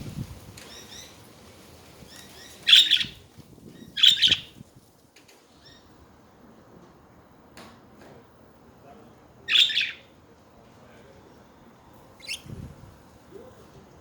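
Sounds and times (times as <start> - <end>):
budgerigars chattering: 9.5 - 10.0, 12.2 - 12.5.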